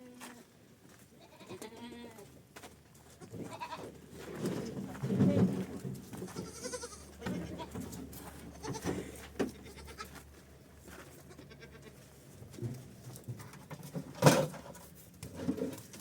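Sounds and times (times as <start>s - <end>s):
goats bleating: 1.2s - 2.2s, 3.2s - 3.9s, 6.3s - 10.2s, 11.2s - 12.0s.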